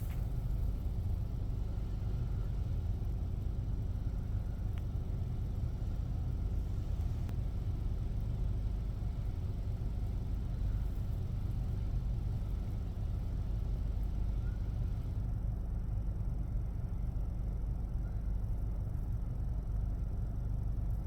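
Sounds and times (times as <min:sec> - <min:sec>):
car wash machinery rumbling: 0:00.0 - 0:15.2.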